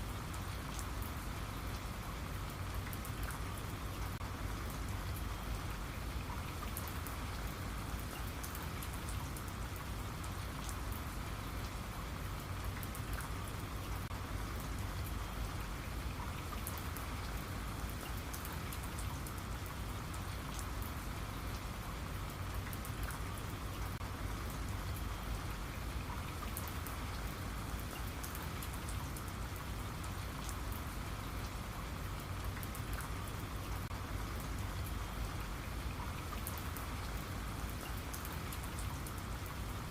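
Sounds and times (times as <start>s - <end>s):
rain falling: 0.0s - 39.9s
raindrops ticking on a surface: 0.0s - 39.9s.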